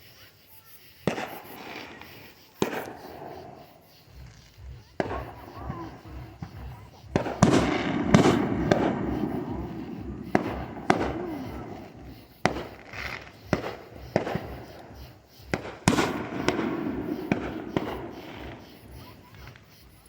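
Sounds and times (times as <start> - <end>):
crackling hiss of fireworks: 0.0 - 20.0
fireworks banging: 0.9 - 20.0.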